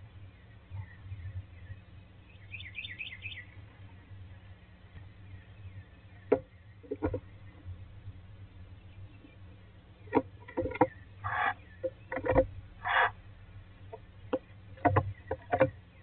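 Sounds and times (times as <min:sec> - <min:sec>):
bird chirping: 0:00.0 - 0:16.0
steady low hum: 0:00.0 - 0:16.0
sharp knocks: 0:11.8 - 0:13.2, 0:13.8 - 0:15.8.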